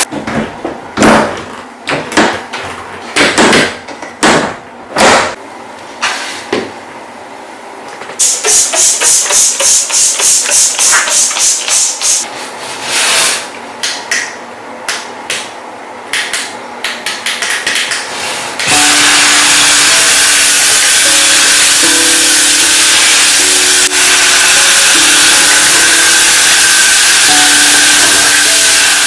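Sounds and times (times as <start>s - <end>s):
hissing cleaning strokes: 18.7s - 29.0s
shower water spraying: 18.7s - 29.0s.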